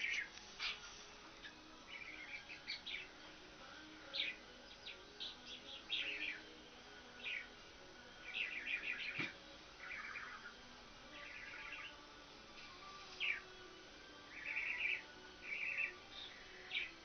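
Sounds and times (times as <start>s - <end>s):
small birds chirping: 0.0s - 7.6s, 8.2s - 12.0s, 12.6s - 13.6s, 14.2s - 17.0s
bird trills: 8.3s - 10.6s, 14.3s - 17.0s.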